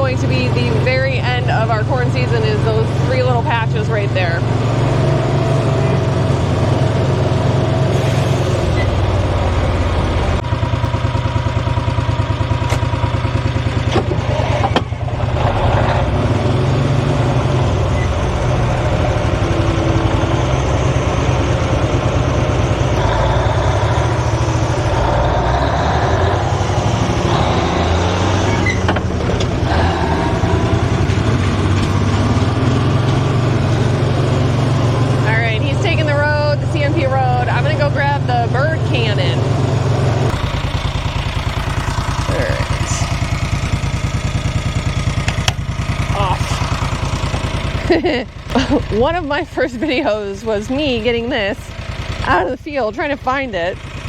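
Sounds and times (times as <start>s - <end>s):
truck engine rumbling: 0.0s - 54.0s.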